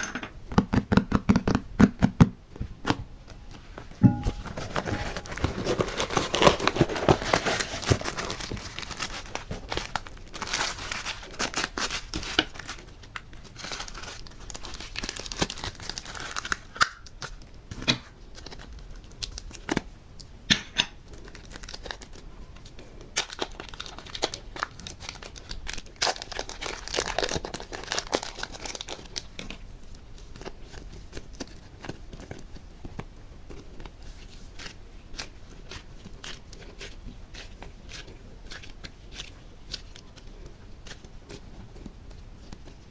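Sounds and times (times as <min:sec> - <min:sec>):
crinkling and tearing: 0:02.7 - 0:20.2, 0:21.1 - 0:42.9.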